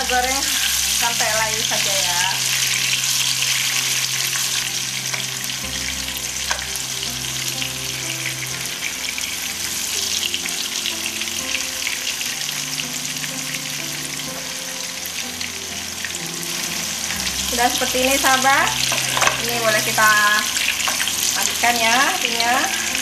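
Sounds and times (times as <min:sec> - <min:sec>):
oil sizzling and crackling: 0:00.0 - 0:23.0
soft background music: 0:00.0 - 0:23.0
spatula stirring: 0:15.9 - 0:23.0.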